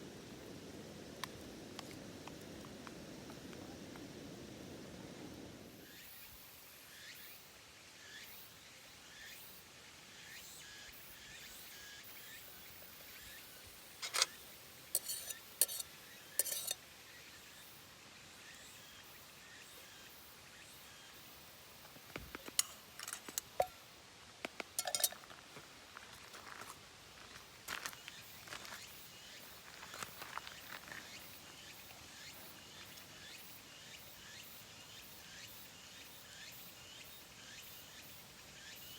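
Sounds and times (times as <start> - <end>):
faint outdoor background: 0.0 - 38.9
cutlery clinking against a dish: 14.0 - 14.4, 15.0 - 16.8, 22.5 - 23.8, 24.8 - 25.2.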